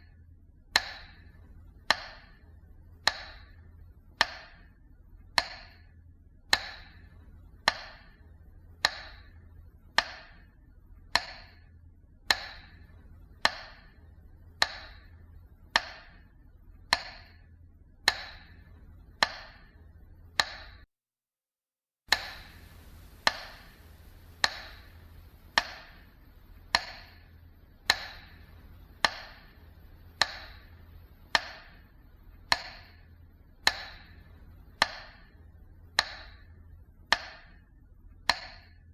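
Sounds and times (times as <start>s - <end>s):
metronome ticking: 0.0s - 20.9s, 22.1s - 38.9s.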